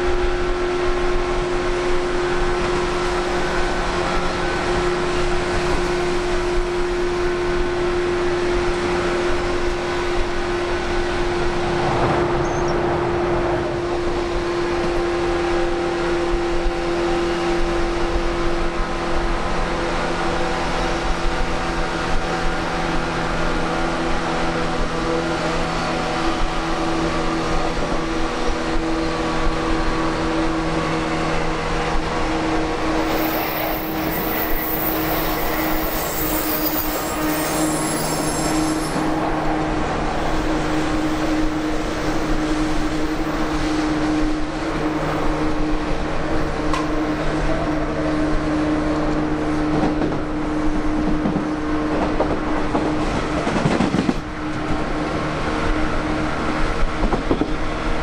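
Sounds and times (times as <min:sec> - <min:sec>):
even multi-tone hum: 0:00.0 - 0:17.9
train wheels rumbling on rails: 0:00.0 - 0:58.0
faint high-pitched squeal: 0:33.0 - 0:39.3.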